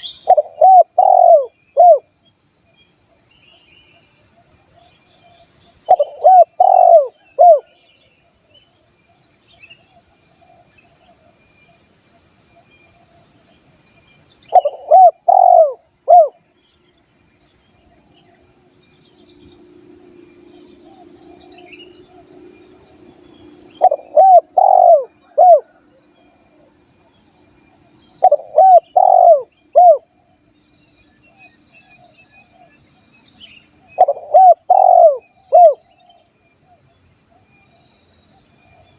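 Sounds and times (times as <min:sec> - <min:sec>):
high-pitched insect drone: 0:00.0 - 0:38.9
dove cooing: 0:00.1 - 0:02.1, 0:05.9 - 0:07.7, 0:14.5 - 0:16.4, 0:23.7 - 0:25.8, 0:28.2 - 0:30.1, 0:33.9 - 0:35.9.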